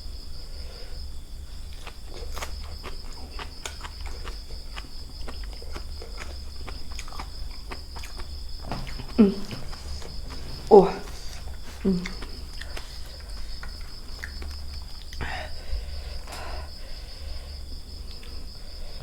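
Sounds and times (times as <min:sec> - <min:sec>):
crickets chirring: 0:00.0 - 0:19.0
clicks and taps of eating: 0:01.8 - 0:10.5, 0:11.6 - 0:15.3.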